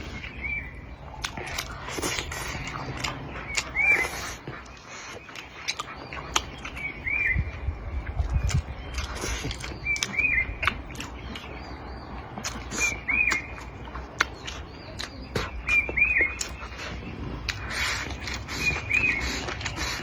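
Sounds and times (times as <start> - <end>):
bird chirping: 0.0 - 20.0
person eating with clicks and smacks: 0.0 - 20.0.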